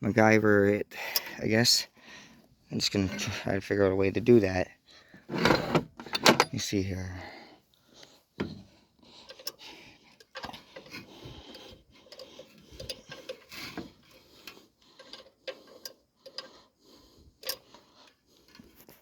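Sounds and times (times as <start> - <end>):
small metal parts clicking and rattling: 9.2 - 16.8, 17.4 - 19.0.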